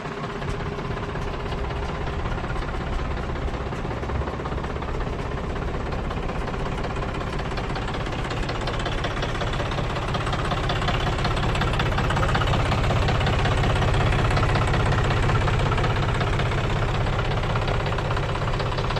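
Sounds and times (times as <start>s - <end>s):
tractor diesel engine running: 0.0s - 18.9s.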